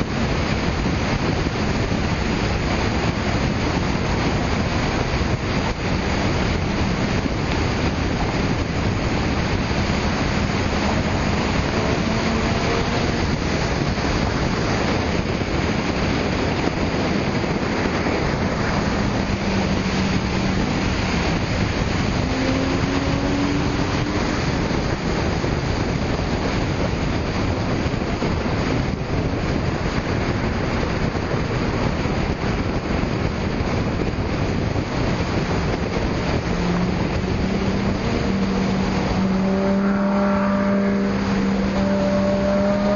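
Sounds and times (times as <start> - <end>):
car engines revving: 0.0 - 42.9
wind rushing on microphone: 0.0 - 42.9.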